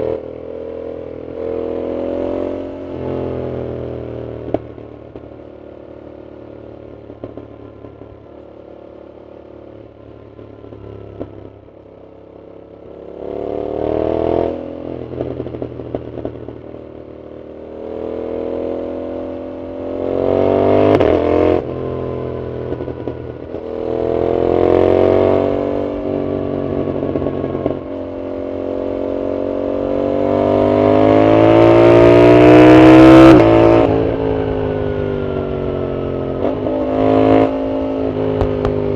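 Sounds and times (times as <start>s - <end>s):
motorcycle engine accelerating: 0.0s - 38.9s
exhaust pops: 7.1s - 8.2s.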